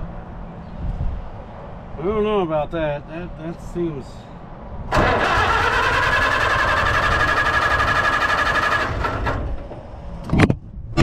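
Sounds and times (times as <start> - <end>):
starter motor whining: 4.9 - 9.8
engine turning over: 4.9 - 10.0.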